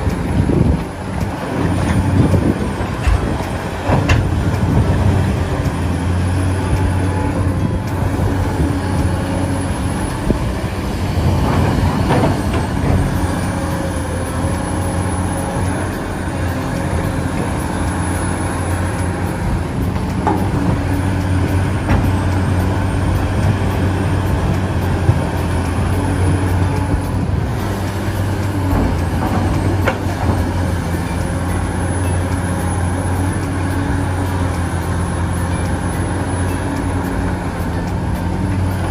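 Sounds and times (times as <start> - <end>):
engine humming steadily: 0.0 - 38.9.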